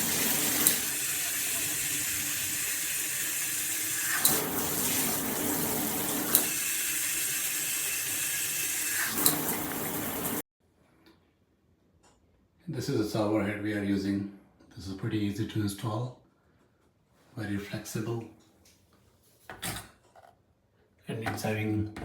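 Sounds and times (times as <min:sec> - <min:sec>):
shower head spraying water: 0:00.0 - 0:10.4
shower head setting clicks: 0:06.0 - 0:06.5.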